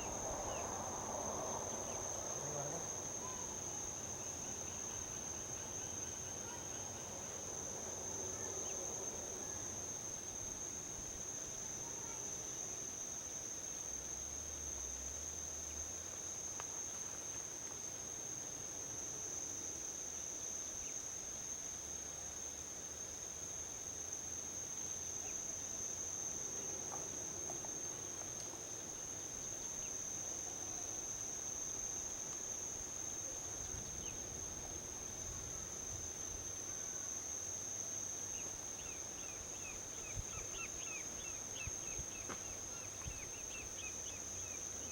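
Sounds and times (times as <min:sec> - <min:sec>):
insects chirring: 0:00.0 - 0:14.3, 0:22.4 - 0:44.9.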